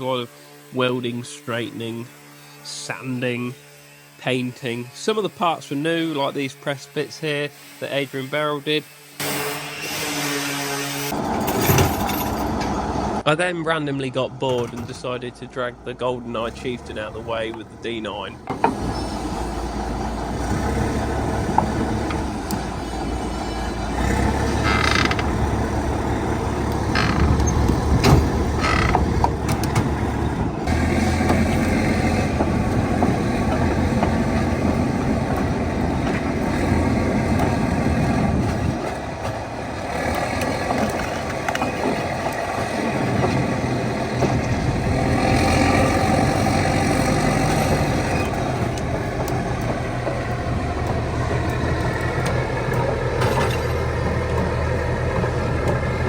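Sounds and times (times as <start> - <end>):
metal tracks creaking: 0.7 - 56.0
bulldozer diesel engine running: 11.1 - 56.0
short high squeals: 22.6 - 27.7, 28.5 - 29.2.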